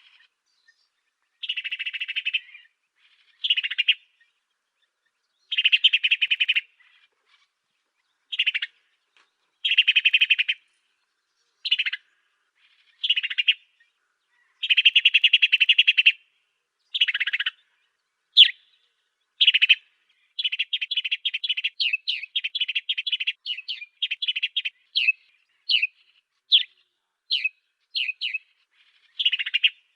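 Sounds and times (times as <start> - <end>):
buzzy trilled birdsong: 0.0 - 29.9
downward-sweeping bird chirps: 18.4 - 29.9.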